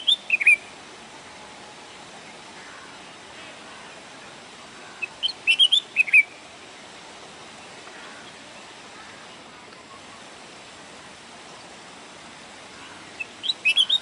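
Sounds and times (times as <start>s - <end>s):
sparrow chirping: 0.0s - 0.6s, 4.9s - 6.4s, 12.8s - 14.0s
steady background hiss: 0.0s - 14.0s.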